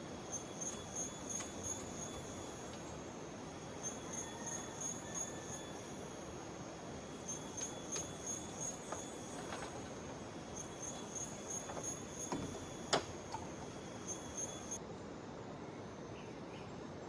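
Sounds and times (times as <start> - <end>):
insects chirping: 0.0 - 14.8
clicks and knocks: 11.7 - 13.6.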